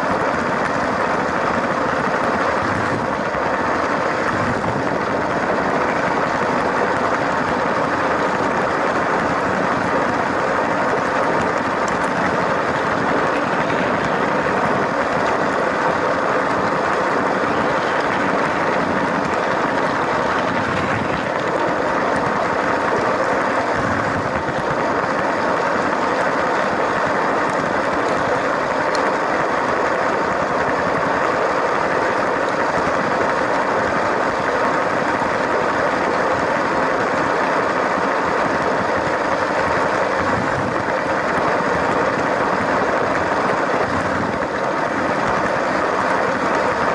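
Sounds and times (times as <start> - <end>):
toy train running on track: 24.4 - 46.9.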